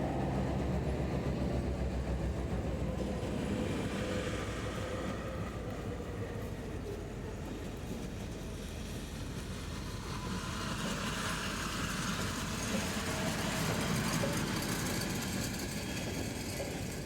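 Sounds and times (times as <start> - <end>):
diesel locomotive engine rumble: 0.0 - 17.0.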